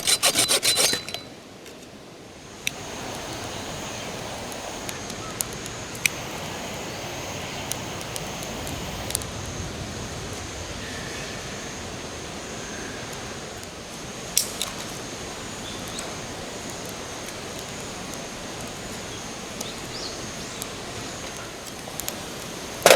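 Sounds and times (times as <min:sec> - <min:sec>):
steady rushing noise: 0:02.4 - 0:13.5.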